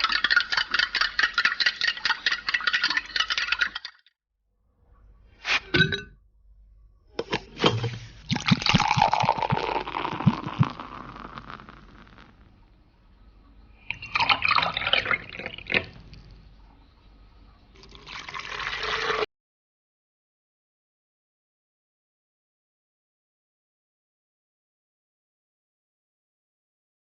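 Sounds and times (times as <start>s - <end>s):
liquid pouring into a vessel: 7.6s - 12.5s, 13.8s - 16.0s, 17.8s - 19.3s.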